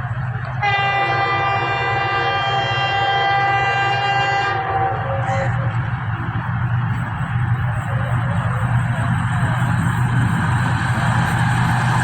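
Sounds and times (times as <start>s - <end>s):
locomotive air horn: 0.6s - 5.5s.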